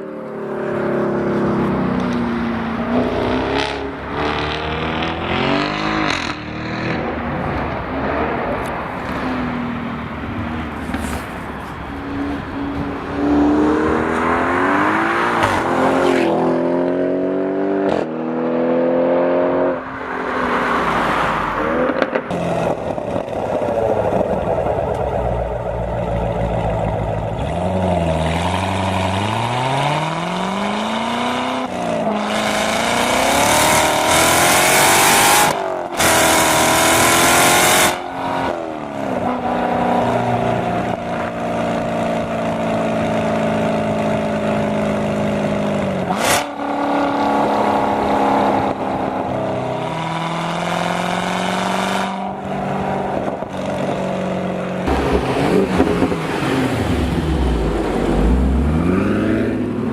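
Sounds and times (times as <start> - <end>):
wind and road noise: 0.0 - 59.9
car engine accelerating hard: 20.4 - 59.9.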